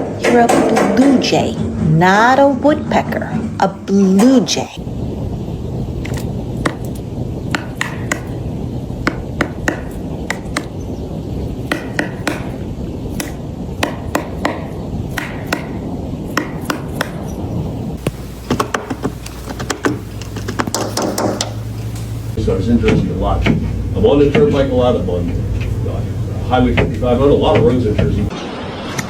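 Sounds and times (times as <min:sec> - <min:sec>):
steady low rumble: 0:01.4 - 0:28.3
bird pecking on wood: 0:06.0 - 0:08.4, 0:09.0 - 0:10.8, 0:11.6 - 0:17.3, 0:18.0 - 0:22.3.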